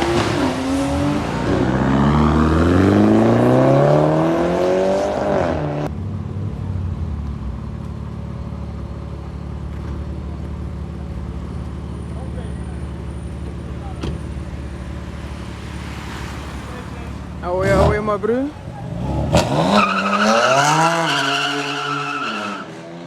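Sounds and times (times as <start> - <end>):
car engine accelerating: 0.0 - 22.8
car engine idling: 5.9 - 19.1.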